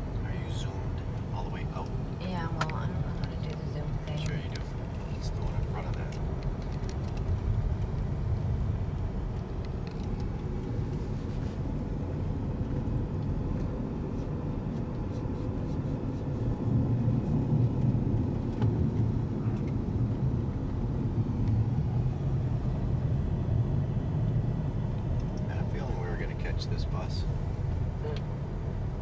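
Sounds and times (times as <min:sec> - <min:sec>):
car road and engine rumble: 0:00.0 - 0:29.0.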